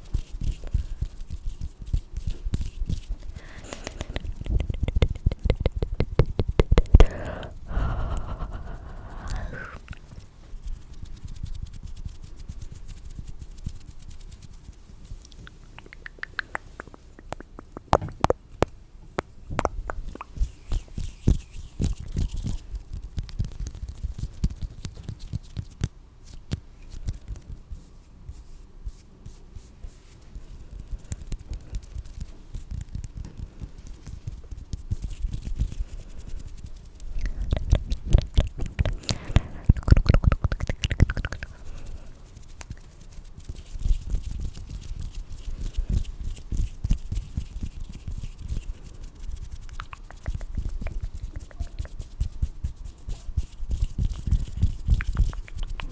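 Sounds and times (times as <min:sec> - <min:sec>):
asmr rubbing: 0:00.2 - 0:12.4, 0:27.8 - 0:55.9.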